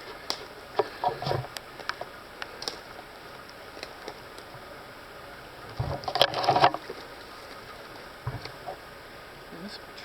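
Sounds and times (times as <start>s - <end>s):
faint steady hiss: 0.0s - 10.0s
leaves and brush rustling: 0.0s - 10.0s
footstep thump: 8.2s - 8.6s.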